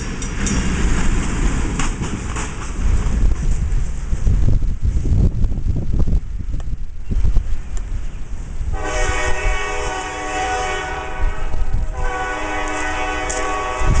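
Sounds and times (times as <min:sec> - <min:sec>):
passing train rumble: 0:00.0 - 0:14.0
locomotive air horn blast: 0:08.7 - 0:14.0.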